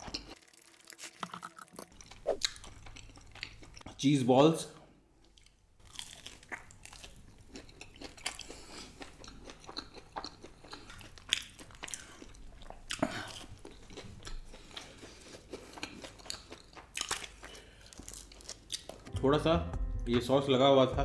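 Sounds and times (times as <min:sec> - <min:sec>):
crunchy chewing: 0:05.2 - 0:19.1.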